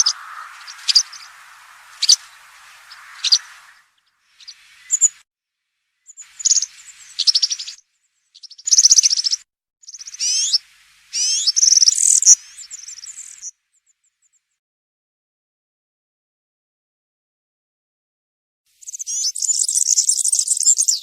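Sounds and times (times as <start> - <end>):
bird singing jingling song: 0.0 - 3.8, 4.4 - 5.2, 6.1 - 7.8, 8.4 - 13.5, 18.8 - 21.0.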